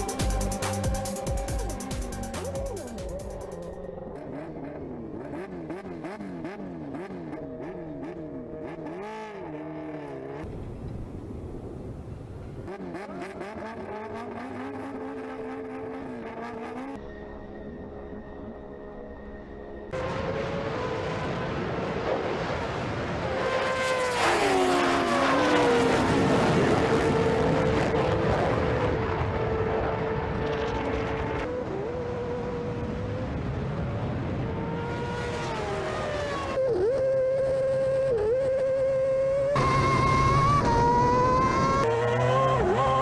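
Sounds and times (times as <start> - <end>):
racing engines revving: 4.0 - 10.5, 12.6 - 17.0, 19.9 - 43.0
racing car passing by: 19.9 - 43.0.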